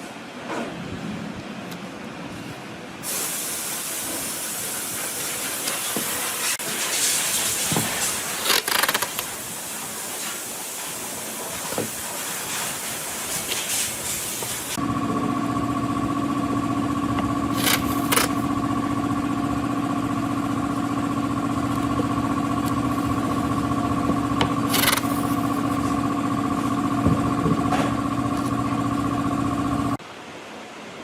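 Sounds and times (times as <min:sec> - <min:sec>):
short noisy grinding bursts: 0:05.0 - 0:30.0
angle grinder motor whining: 0:14.4 - 0:30.0.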